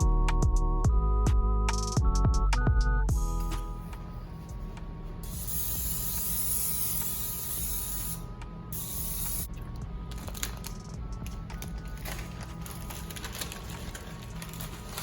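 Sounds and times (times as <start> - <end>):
soft background music: 0.0 - 15.0
spray hissing: 5.2 - 8.2.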